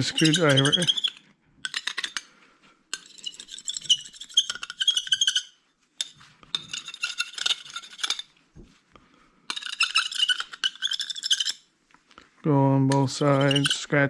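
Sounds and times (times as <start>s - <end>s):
screwdriver scratching metal platter: 0.0s - 2.2s, 3.0s - 5.5s, 6.6s - 8.2s, 9.5s - 11.6s, 13.0s - 13.9s.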